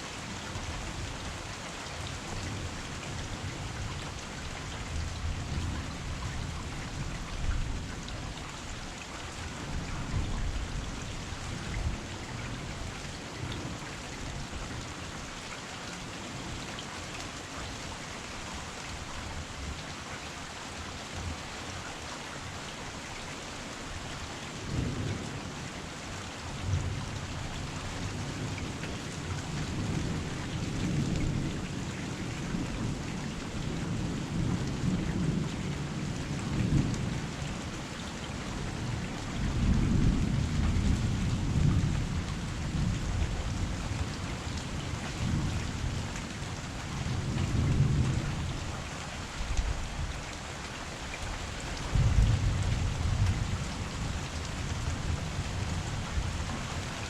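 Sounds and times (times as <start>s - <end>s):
heavy rain falling: 0.0s - 57.0s
thunder rumbling: 51.8s - 56.3s.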